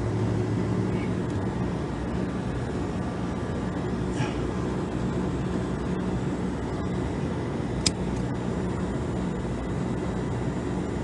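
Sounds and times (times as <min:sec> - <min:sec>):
machinery humming: 0:00.0 - 0:11.0
sharp click: 0:07.8 - 0:08.0.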